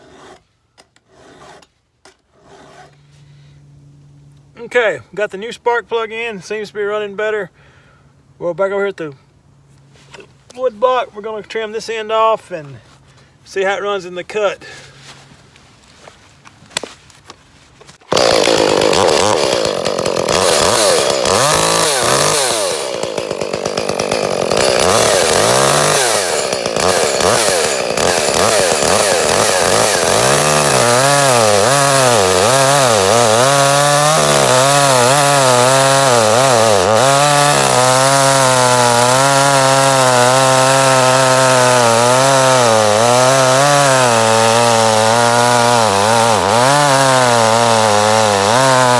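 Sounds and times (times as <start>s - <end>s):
chainsaw revving and cutting wood: 18.1s - 48.9s.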